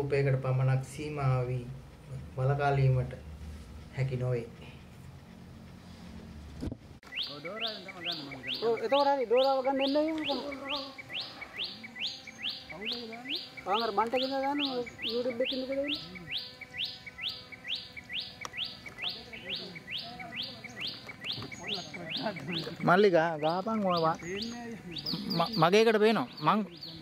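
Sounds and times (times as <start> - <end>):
softer lower bird calls: 7.0 - 25.7
bird chirping rapidly: 7.0 - 27.0.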